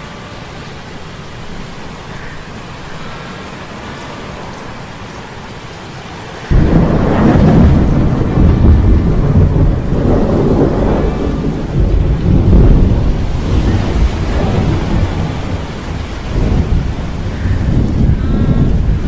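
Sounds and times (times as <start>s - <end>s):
heavy rain: 0.0s - 19.0s
deep rolling thunder: 6.5s - 19.0s.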